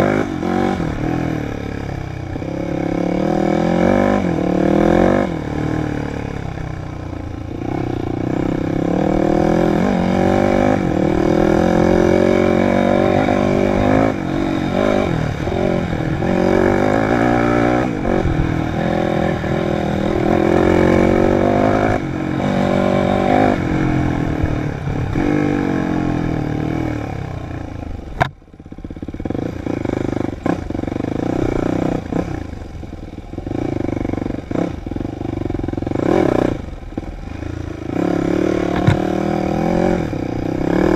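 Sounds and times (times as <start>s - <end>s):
dirt bike engine revving: 0.0s - 27.6s, 28.7s - 40.9s
sharp knock: 38.7s - 39.1s.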